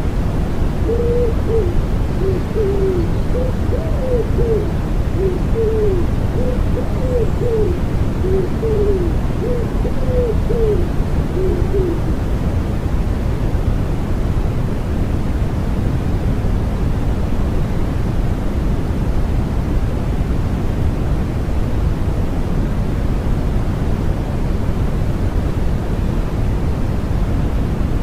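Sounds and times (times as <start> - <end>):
white noise hiss: 0.0 - 28.0
pigeon cooing: 0.7 - 12.1.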